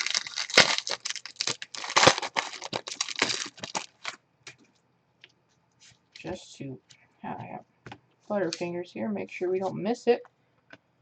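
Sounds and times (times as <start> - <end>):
clicking and crinkling handling noise: 0.0 - 7.0.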